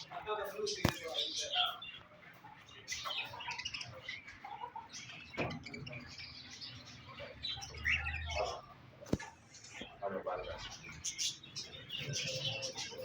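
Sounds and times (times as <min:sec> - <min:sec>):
finches chirping and twittering: 0:00.0 - 0:13.0.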